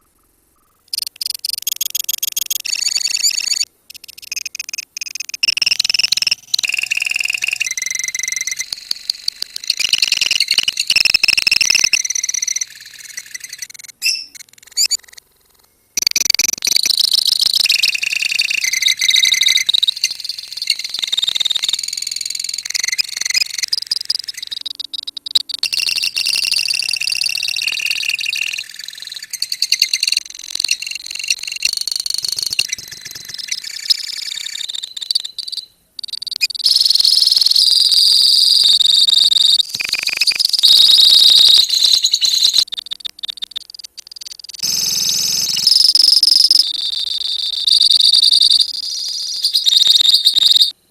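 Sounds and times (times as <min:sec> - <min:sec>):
lovebirds chattering and trilling: 0:17.4 - 0:26.2.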